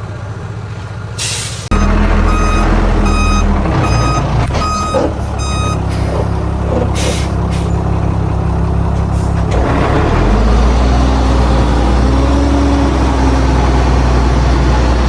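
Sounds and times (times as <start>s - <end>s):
heavy diesel machine running: 0.0s - 15.0s
reversing alarm beeping: 1.7s - 7.2s.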